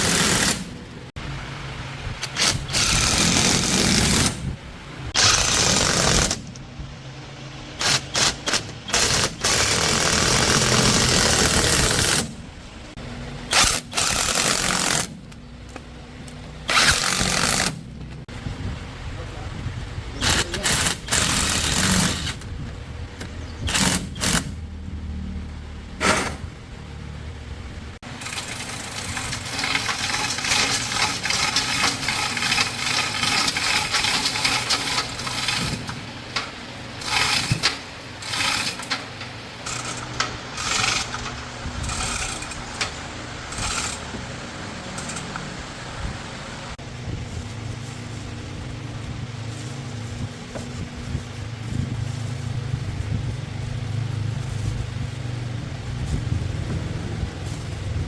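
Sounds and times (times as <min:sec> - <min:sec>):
engine running: 0:00.0 - 0:58.0
metal tools clattering: 0:28.2 - 0:45.4.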